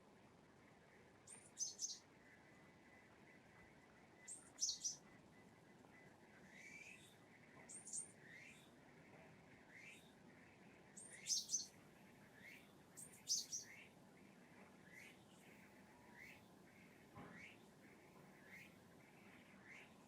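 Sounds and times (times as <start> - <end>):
sparrow chirping: 1.3 - 2.1, 4.1 - 5.2, 11.0 - 11.8, 12.4 - 13.9.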